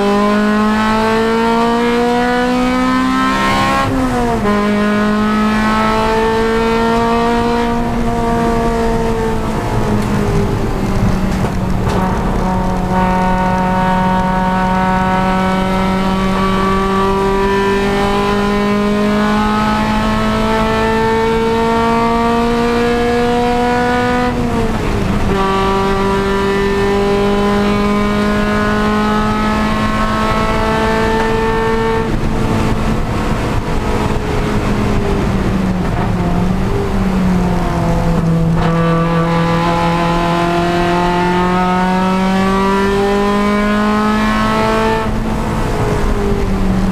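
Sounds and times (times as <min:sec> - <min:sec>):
race car engine accelerating: 0:00.0 - 0:46.9.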